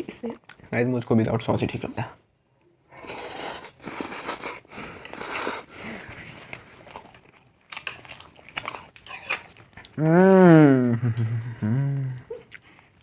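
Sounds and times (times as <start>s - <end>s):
noodles being slurped and chewed: 2.9s - 10.4s.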